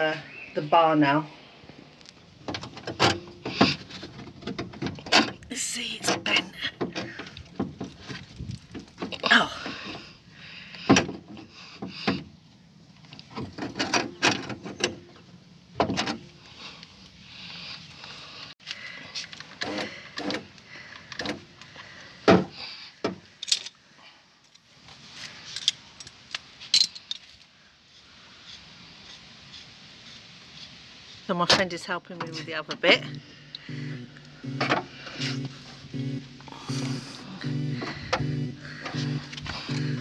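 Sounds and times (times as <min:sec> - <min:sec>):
metallic clinks and knocks: 0:25.5 - 0:27.4.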